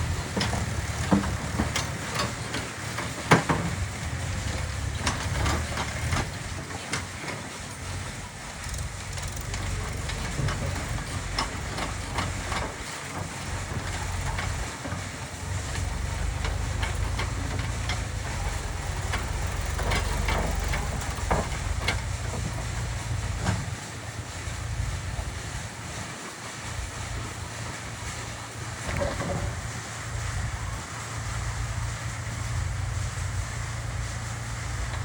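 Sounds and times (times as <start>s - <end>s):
sharp knocks and clanks: 0.0s - 7.4s, 8.6s - 23.8s
diesel engine running: 0.0s - 35.0s.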